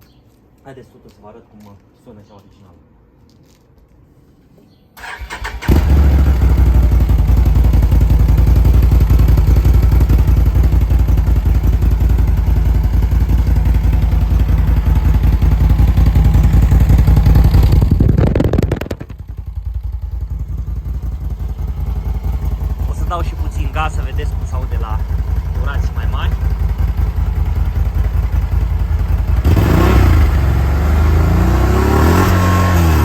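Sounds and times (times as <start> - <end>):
engine idling loudly: 22.3 - 30.7.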